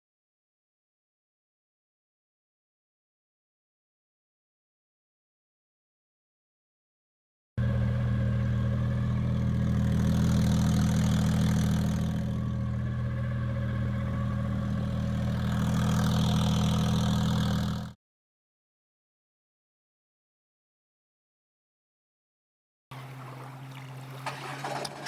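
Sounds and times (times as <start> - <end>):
boat engine idling: 7.6 - 17.9, 22.9 - 25.0.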